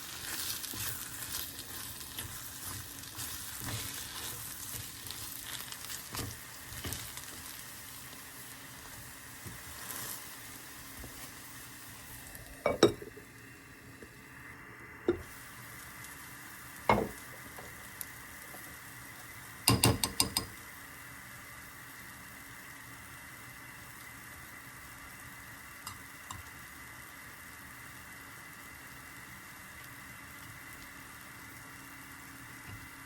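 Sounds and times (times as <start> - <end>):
food sizzling in a pan: 0.0 - 33.0
utensil knocking on cookware: 19.7 - 20.5.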